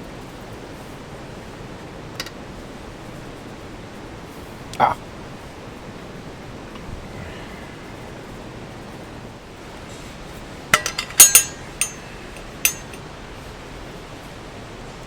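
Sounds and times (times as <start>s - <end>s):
hard objects clinking: 10.8s - 13.0s.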